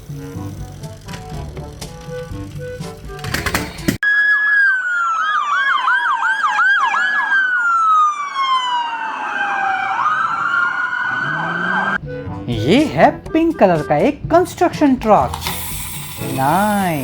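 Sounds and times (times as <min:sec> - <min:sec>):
background music: 0:00.0 - 0:04.0, 0:12.0 - 0:17.0
toy electronic siren: 0:04.0 - 0:12.0.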